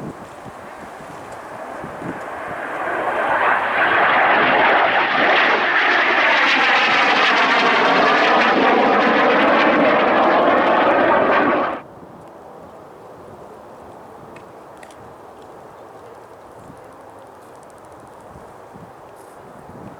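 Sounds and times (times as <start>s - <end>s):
airliner engine roar passing: 0.0s - 11.9s.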